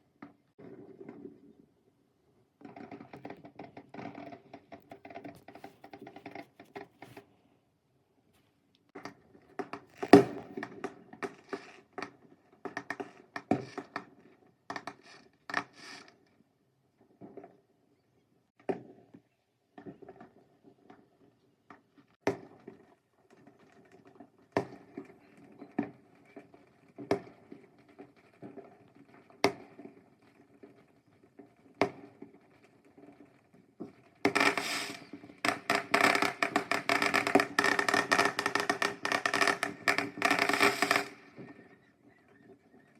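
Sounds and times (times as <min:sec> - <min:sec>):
fireworks crackling: 0:02.7 - 0:07.3, 0:09.8 - 0:11.8, 0:31.6 - 0:41.8
fireworks bangs: 0:34.2 - 0:41.7.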